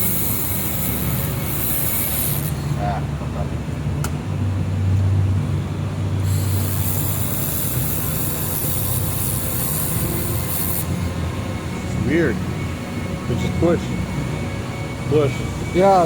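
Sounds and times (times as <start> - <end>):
welding torch hissing: 0.0 - 2.8, 6.2 - 11.2
machine humming: 0.0 - 4.4, 5.5 - 16.0.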